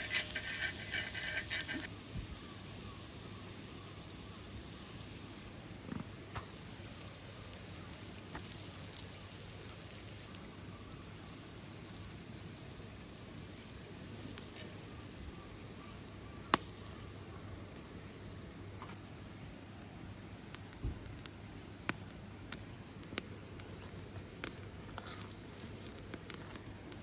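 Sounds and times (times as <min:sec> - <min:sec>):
food sizzling over campfire: 0:00.0 - 0:27.0.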